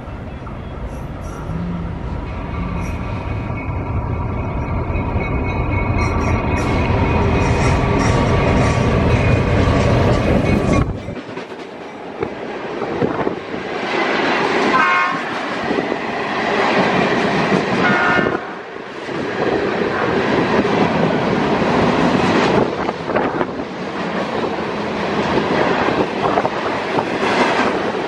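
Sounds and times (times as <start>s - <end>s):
train rumbling on rails: 0.0s - 28.0s
train wheel noise on track: 0.0s - 28.0s
short train horn: 14.7s - 15.3s, 17.8s - 18.6s.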